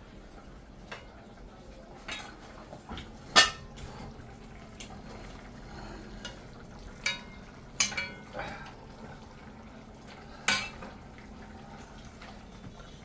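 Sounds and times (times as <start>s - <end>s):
dishes and utensils clattering: 0.8s - 5.5s, 6.2s - 8.8s, 10.1s - 11.3s.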